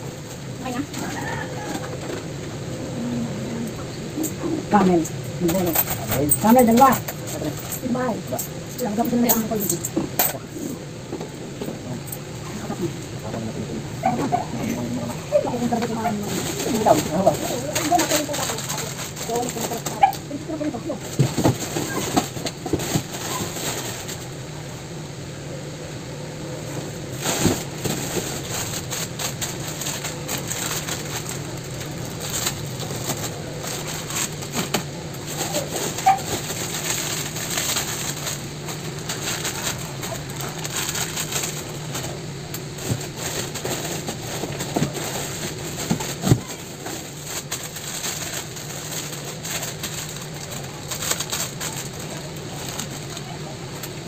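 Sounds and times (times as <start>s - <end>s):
plastic crinkling: 12.1s - 24.4s, 27.0s - 54.0s.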